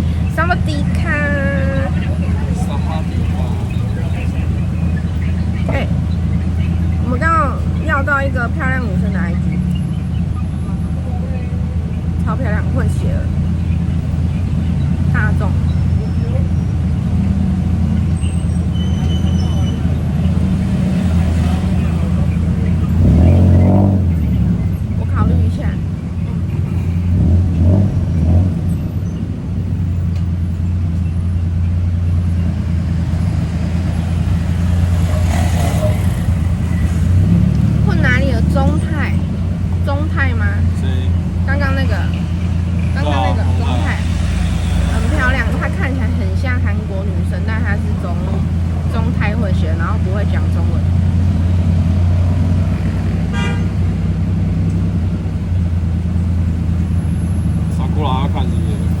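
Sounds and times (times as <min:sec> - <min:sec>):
car engine droning: 0:00.0 - 0:59.0
road noise: 0:00.0 - 0:59.0
car horn toot: 0:18.2 - 0:20.1, 0:53.2 - 0:53.9.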